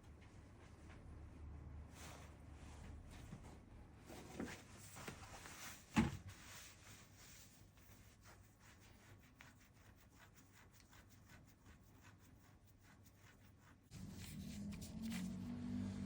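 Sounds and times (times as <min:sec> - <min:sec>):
tapping and rubbing on paper: 0:13.3 - 0:15.8.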